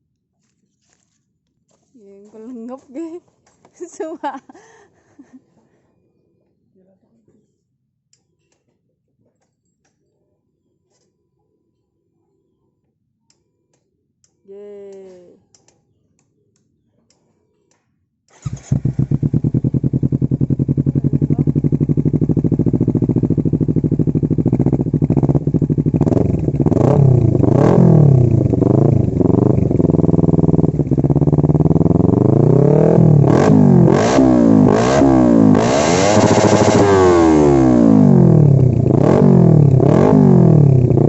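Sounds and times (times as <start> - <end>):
motorcycle engine idling and revving: 18.3 - 41.0
motorcycle engine starting: 18.3 - 41.0.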